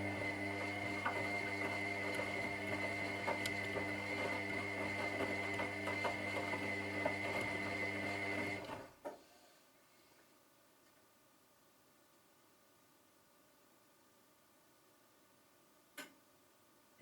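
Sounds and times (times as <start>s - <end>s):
washing machine running: 0.0s - 8.9s.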